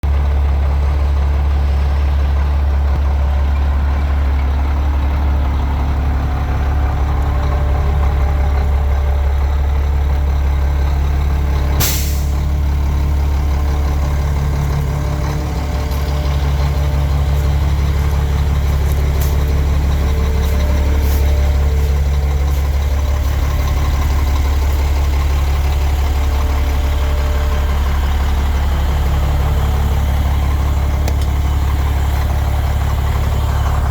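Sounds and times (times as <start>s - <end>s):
diesel truck engine idling: 0.0s - 33.9s
short sharp hiss: 11.8s - 12.4s.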